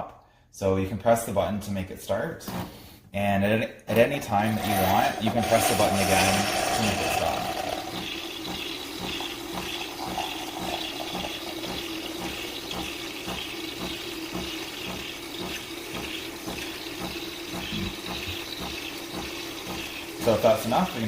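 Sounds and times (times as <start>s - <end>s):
frothing milk hiss: 4.4s - 21.0s
pulsing espresso machine hum: 4.4s - 21.0s.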